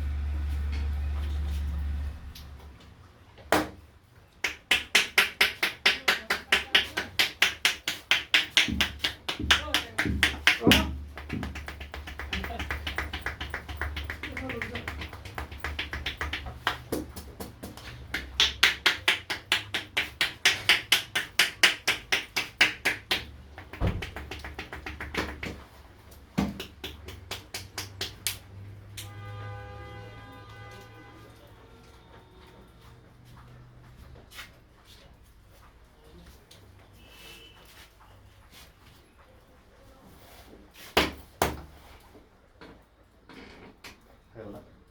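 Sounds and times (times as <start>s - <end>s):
hands slapping a head: 3.5s - 3.8s, 4.4s - 25.7s, 26.4s - 28.4s, 40.8s - 41.8s.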